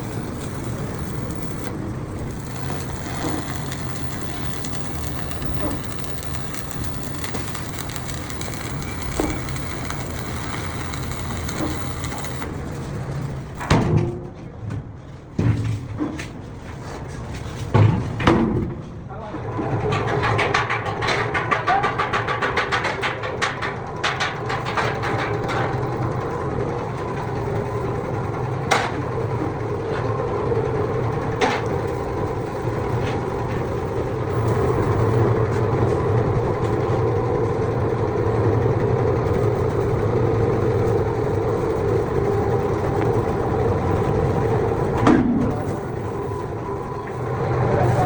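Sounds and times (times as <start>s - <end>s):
fast rattle of clicks: 0.0s - 13.7s
workshop machinery humming: 0.0s - 15.0s, 23.8s - 48.0s.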